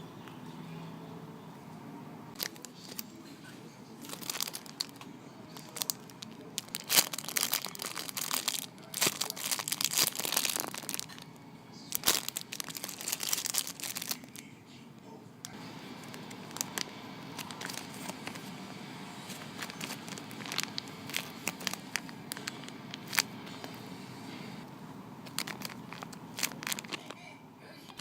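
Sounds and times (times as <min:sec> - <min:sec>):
plastic packaging crinkling: 0:02.4 - 0:03.1, 0:04.0 - 0:11.3, 0:11.9 - 0:14.5, 0:15.5 - 0:24.4, 0:25.2 - 0:28.0.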